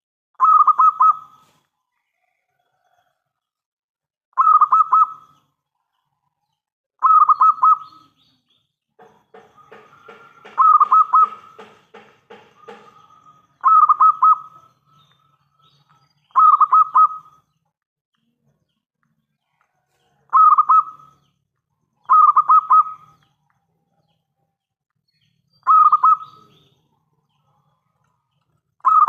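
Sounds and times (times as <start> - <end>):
dove cooing: 9.6 - 11.7, 12.6 - 14.6, 20.3 - 21.1, 22.0 - 23.2.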